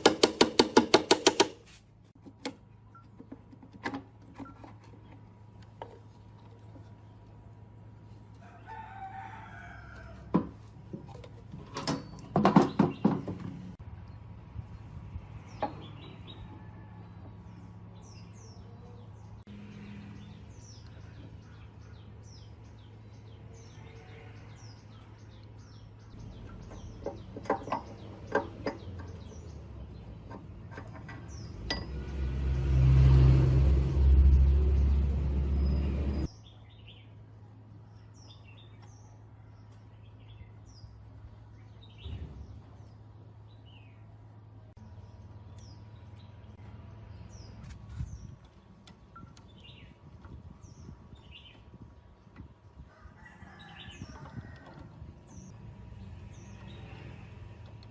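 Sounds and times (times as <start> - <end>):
birds chirping: 11.8 - 31.9, 34.6 - 57.9
metal knocks and taps: 26.5 - 29.2, 30.2 - 32.1.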